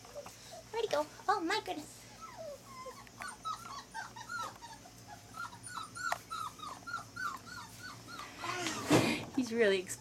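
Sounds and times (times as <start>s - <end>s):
puppy whimpering: 2.0s - 10.0s.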